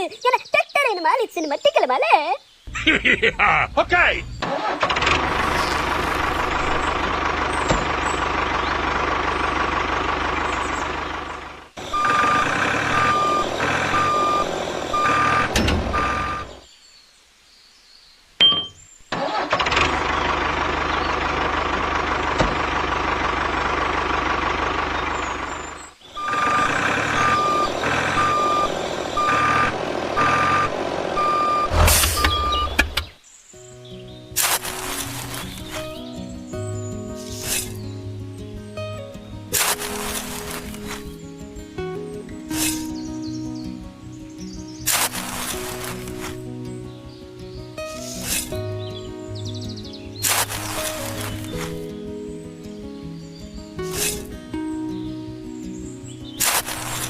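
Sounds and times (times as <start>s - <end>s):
truck engine running: 2.7s - 16.6s, 19.2s - 33.2s, 34.4s - 41.6s, 44.8s - 46.8s, 47.7s - 52.7s, 56.4s - 57.0s
reversing alarm beeping: 11.8s - 16.6s, 26.1s - 33.0s.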